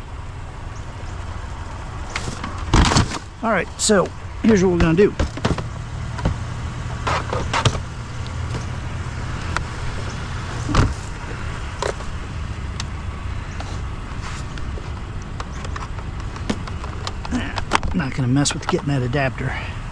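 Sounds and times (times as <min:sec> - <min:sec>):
vehicle engine idling: 0:00.0 - 0:19.9
items knocking and clattering: 0:02.1 - 0:03.3, 0:04.0 - 0:06.4, 0:07.0 - 0:07.9.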